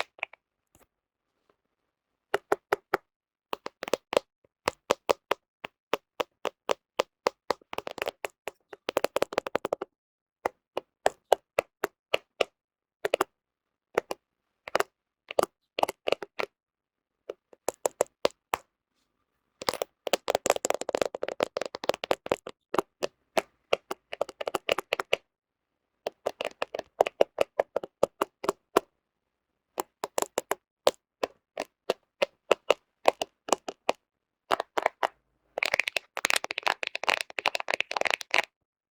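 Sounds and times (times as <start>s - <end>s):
fingernails tapping on camera: 19.6s - 25.2s, 26.1s - 28.8s, 29.8s - 38.5s.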